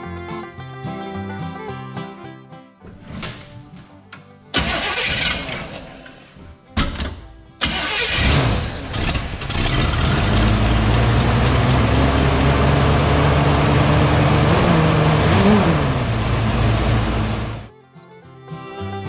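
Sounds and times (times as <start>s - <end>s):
car engine running: 8.1s - 17.7s.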